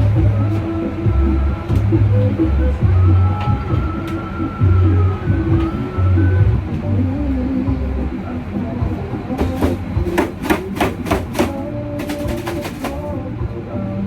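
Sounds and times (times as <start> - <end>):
knife chopping on cutting board: 9.4 - 12.9.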